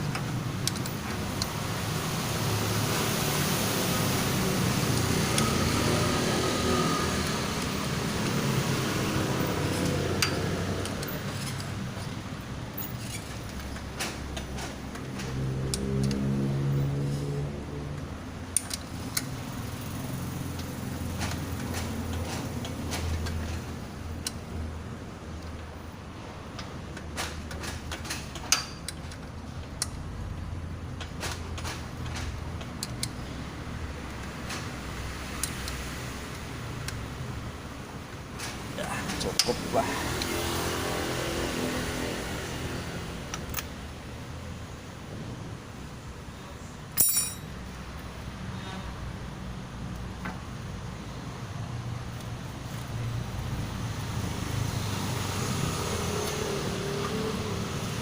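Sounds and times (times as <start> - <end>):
tools and engine parts clicking: 0.0 - 1.6, 9.6 - 16.2, 18.0 - 19.9, 20.5 - 24.5, 26.5 - 30.1, 30.9 - 33.3, 34.0 - 37.1, 38.4 - 40.4, 46.9 - 47.7
light metallic clinks: 47.0 - 47.6.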